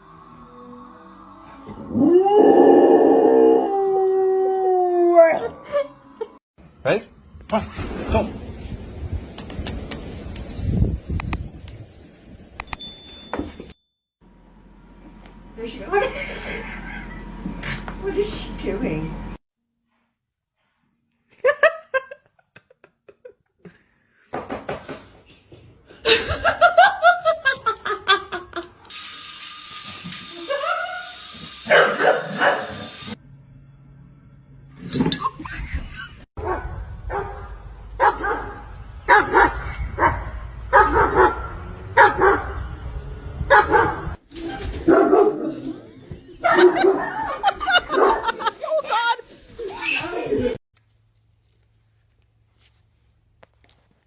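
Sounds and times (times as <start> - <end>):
dog barking: 31.7 - 32.8, 36.4 - 42.6, 43.5 - 44.2, 44.8 - 45.6, 46.4 - 47.3, 47.9 - 48.4.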